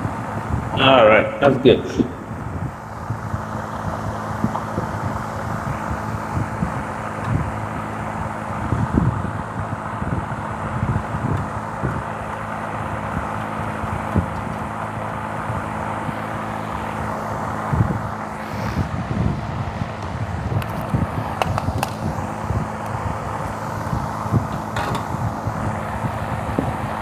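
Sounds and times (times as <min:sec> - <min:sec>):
mechanical hum: 0:00.0 - 0:27.0
light clicks and knocks: 0:24.5 - 0:25.3.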